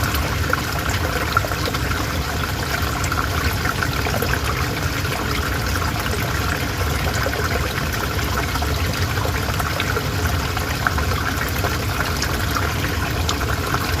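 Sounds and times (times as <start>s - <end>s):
river water flowing: 0.0s - 14.0s.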